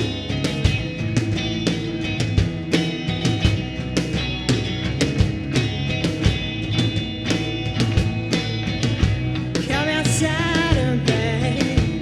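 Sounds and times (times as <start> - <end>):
rock band playing live: 0.0 - 12.0
person singing: 9.6 - 12.0.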